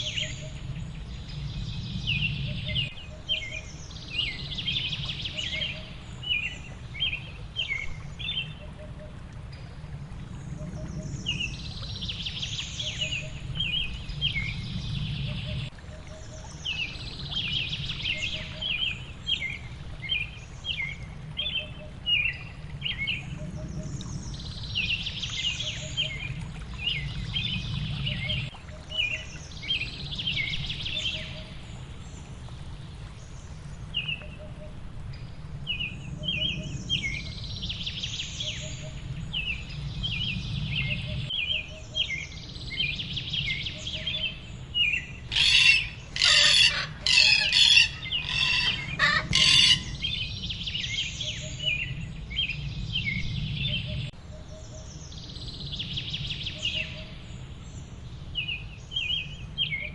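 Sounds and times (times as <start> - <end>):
low steady rushing noise: 0.0 - 59.9
birds chirping: 35.7 - 57.5.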